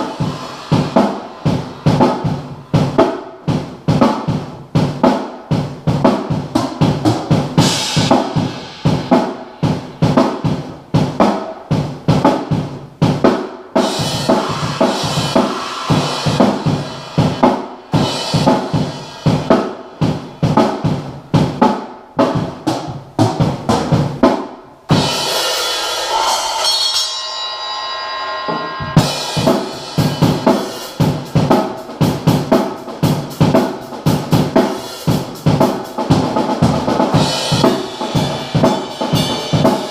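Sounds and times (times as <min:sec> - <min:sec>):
cymbal ringing: 0:00.0 - 0:03.3, 0:13.8 - 0:19.5, 0:25.0 - 0:31.3
drum kit playing: 0:00.0 - 0:39.9.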